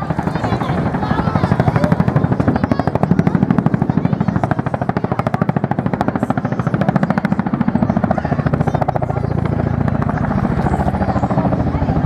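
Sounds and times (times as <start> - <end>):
helicopter rotors beating: 0.0 - 12.0.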